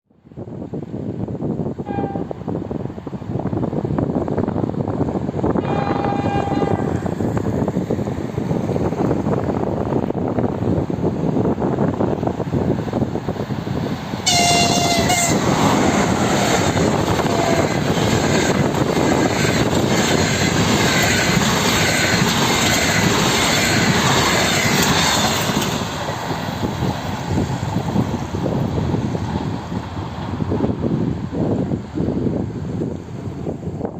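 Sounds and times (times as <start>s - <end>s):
passenger train passing: 0.3s - 33.9s
train horn: 1.8s - 2.3s, 5.6s - 7.1s, 14.2s - 15.7s, 16.4s - 17.9s.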